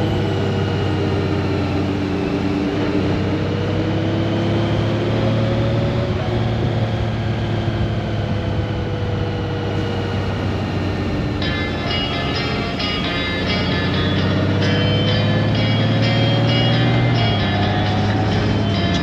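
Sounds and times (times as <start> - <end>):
motorcycle engine running: 6.1 - 19.0.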